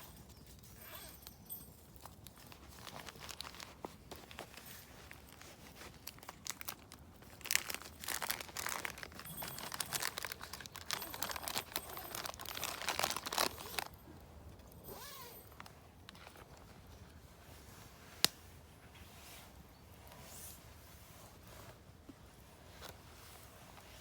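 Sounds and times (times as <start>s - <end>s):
dry kindling crinkling and snapping: 1.9s - 14.8s.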